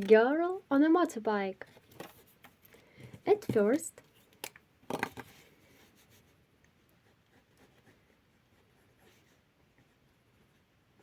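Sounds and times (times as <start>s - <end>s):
pencil strokes on paper: 5.3s - 11.0s.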